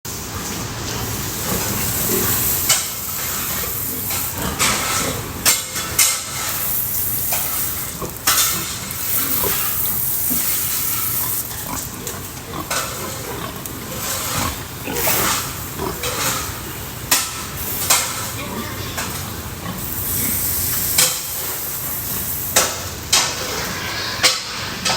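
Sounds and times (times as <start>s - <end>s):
pigs grunting: 0.9s - 22.2s.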